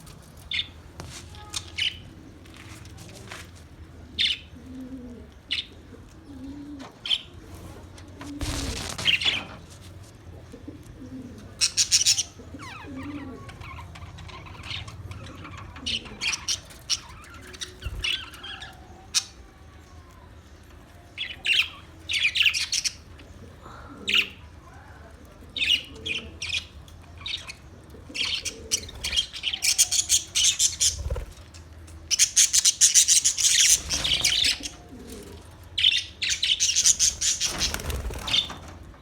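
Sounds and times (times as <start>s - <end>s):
wing flapping: 7.8s - 10.1s, 30.8s - 31.6s, 36.9s - 39.0s
parrots chirping and squawking: 11.6s - 19.4s, 25.6s - 38.7s.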